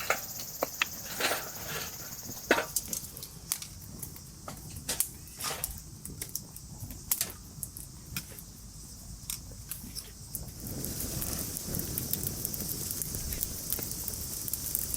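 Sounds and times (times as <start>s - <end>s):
insects chirring: 0.0s - 14.9s.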